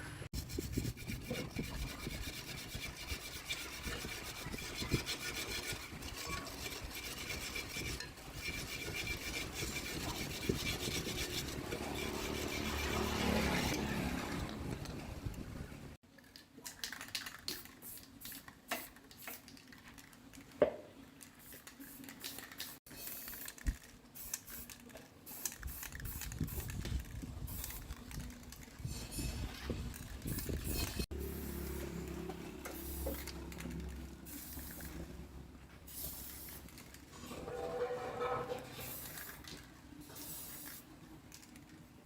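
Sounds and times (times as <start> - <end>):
tools and parts clicking: 16.1 - 20.6, 21.2 - 31.1.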